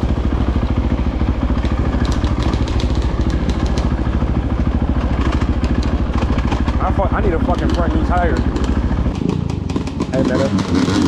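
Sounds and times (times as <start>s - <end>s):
dirt bike engine running: 0.0s - 11.0s
light clicks and clatter: 1.6s - 4.0s.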